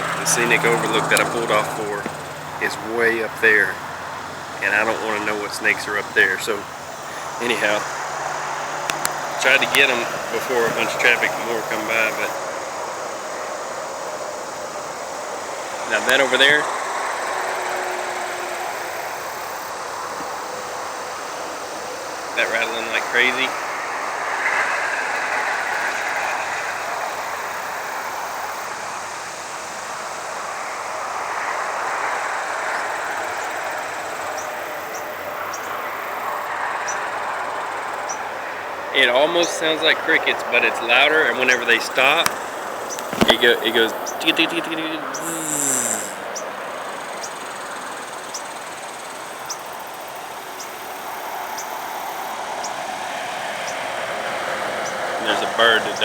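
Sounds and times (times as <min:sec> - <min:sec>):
highway traffic rushing: 0:00.0 - 0:56.0
rattlesnakes rattling: 0:00.0 - 0:56.0
high thin buzz: 0:45.1 - 0:46.3.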